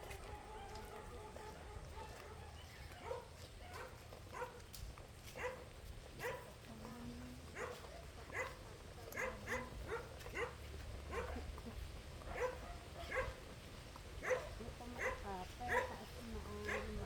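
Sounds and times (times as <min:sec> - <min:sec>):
dog barking: 0:00.2 - 0:04.6, 0:05.3 - 0:11.6, 0:12.2 - 0:13.5, 0:14.2 - 0:17.0.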